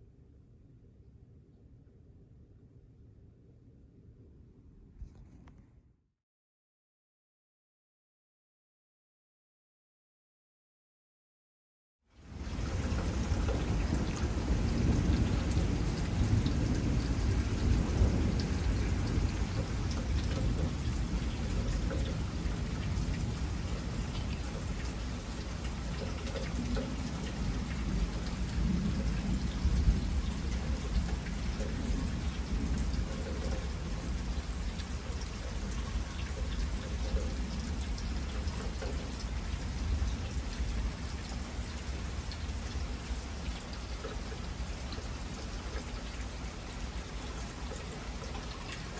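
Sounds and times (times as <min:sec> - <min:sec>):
low rolling thunder: 0:12.3 - 0:43.2
heavy rain falling: 0:12.3 - 0:48.9.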